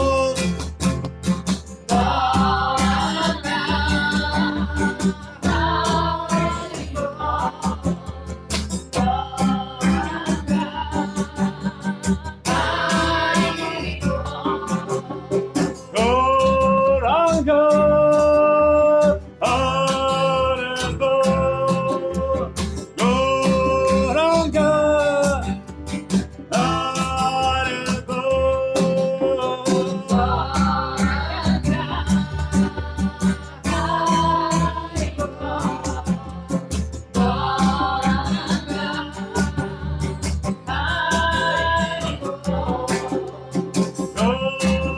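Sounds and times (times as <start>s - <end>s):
acoustic guitar strumming: 0.0s - 44.9s
voices singing a chant: 1.9s - 16.5s, 29.2s - 44.9s.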